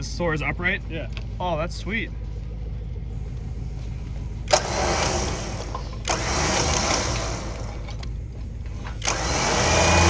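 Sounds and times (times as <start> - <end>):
low engine rumble: 0.0 - 10.0
electric winch running: 4.4 - 8.0, 8.8 - 10.0.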